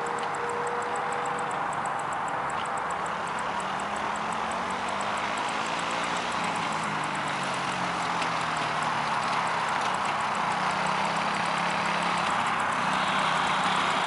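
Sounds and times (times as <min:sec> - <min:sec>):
quad bike engine running: 0:00.0 - 0:14.0.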